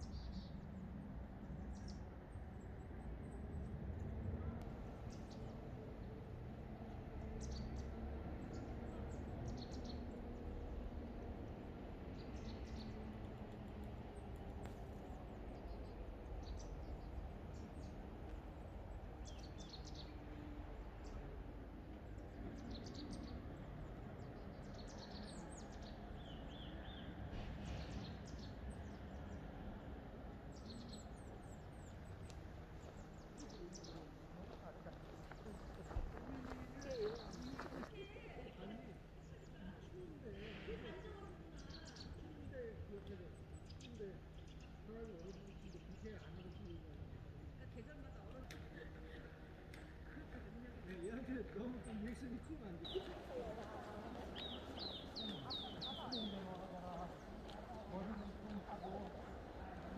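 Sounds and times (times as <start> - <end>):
small birds chirping: 0.0 - 3.8, 4.5 - 59.9
snowplow engine rumble: 52.9 - 59.9.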